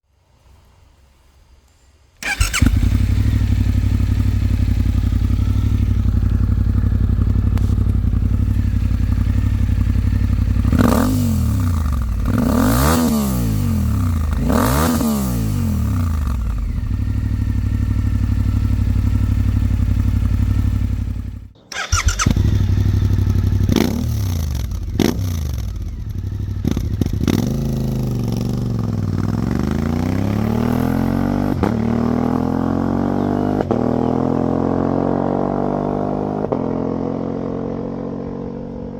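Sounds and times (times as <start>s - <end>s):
motorcycle engine idling: 2.2s - 12.4s, 15.6s - 29.8s.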